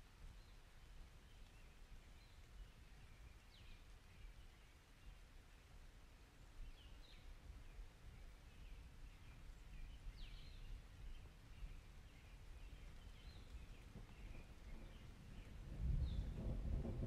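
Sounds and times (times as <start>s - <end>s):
faint bird chirps: 6.4s - 16.6s.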